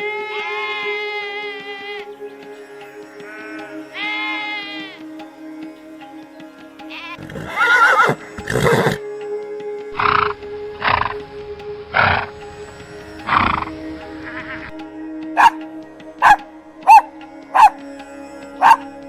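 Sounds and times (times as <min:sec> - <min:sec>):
soft background music: 0:00.0 - 0:19.0
horse whinnying: 0:07.2 - 0:09.0, 0:10.0 - 0:11.2, 0:12.0 - 0:12.3, 0:13.3 - 0:14.8.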